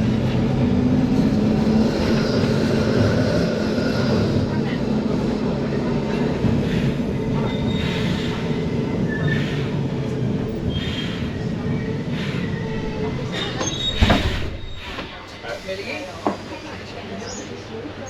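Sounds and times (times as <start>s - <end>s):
tram wheels and motors rumbling: 0.0s - 18.0s
faint wheel squeals: 10.7s - 15.2s.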